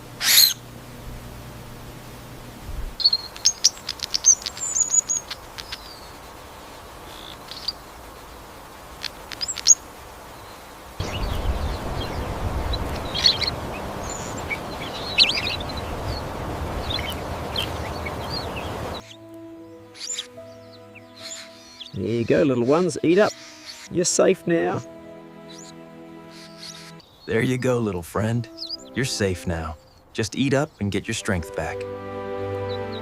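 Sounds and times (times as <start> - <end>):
small birds chirping: 0.0 - 0.6, 3.0 - 31.8, 32.5 - 33.0
rushing noise: 11.0 - 19.0.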